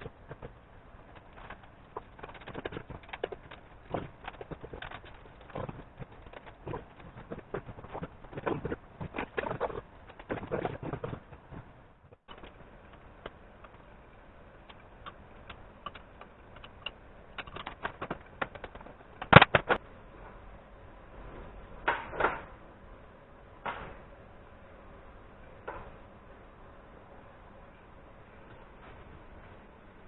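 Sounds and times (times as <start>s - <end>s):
metal parts and tools clicking: 0.0s - 11.6s, 14.6s - 19.8s.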